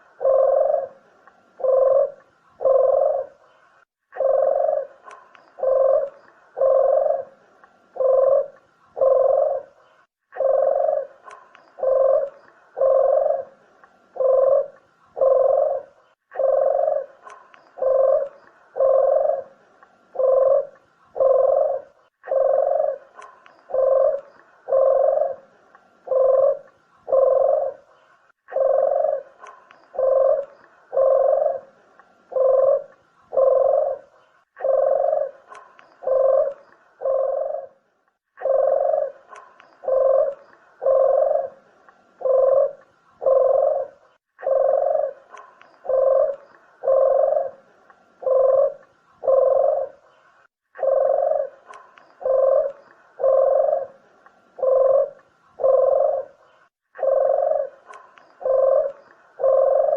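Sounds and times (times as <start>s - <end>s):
dove cooing: 0.0s - 59.9s.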